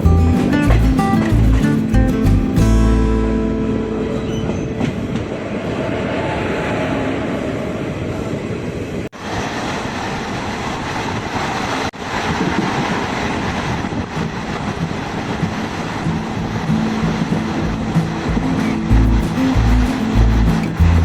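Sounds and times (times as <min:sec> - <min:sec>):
train rumbling and rattling: 0:04.3 - 0:21.0.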